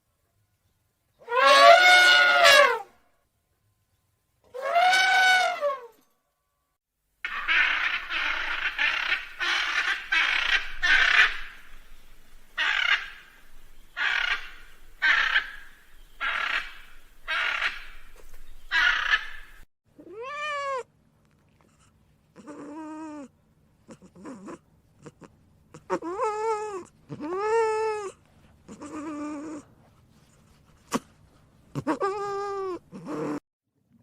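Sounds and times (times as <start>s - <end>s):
harsh raspy animal calls: 7.2s - 11.8s, 12.6s - 13.4s, 14.0s - 18.0s, 23.9s - 28.1s, 28.7s - 29.6s
cat meowing: 20.0s - 20.9s.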